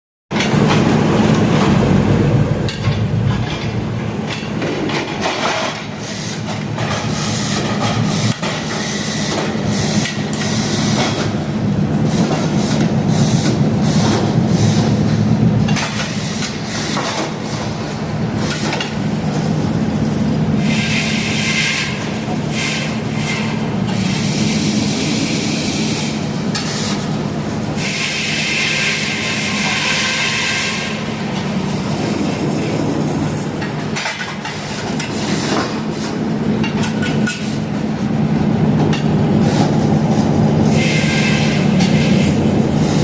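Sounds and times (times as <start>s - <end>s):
engine drone: 0.3s - 5.5s.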